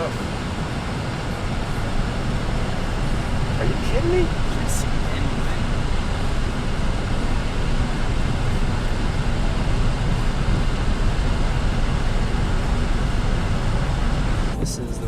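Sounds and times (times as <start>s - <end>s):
car cabin road and engine rumble: 0.0s - 15.0s.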